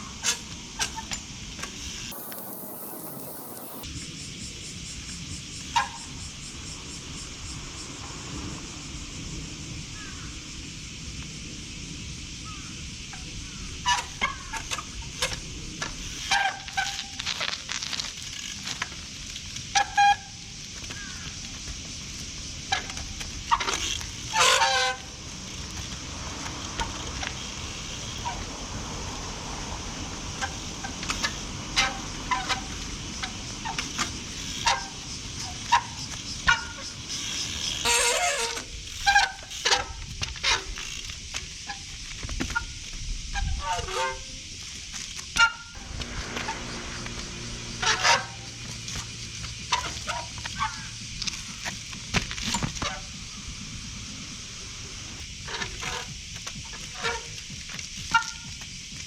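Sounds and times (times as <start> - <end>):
bicycle knocks and squeals: 0.0 - 3.9, 5.6 - 6.2, 12.4 - 59.0
rain hissing: 1.8 - 3.8, 15.7 - 19.1, 25.0 - 37.1, 45.7 - 52.1, 53.1 - 57.4.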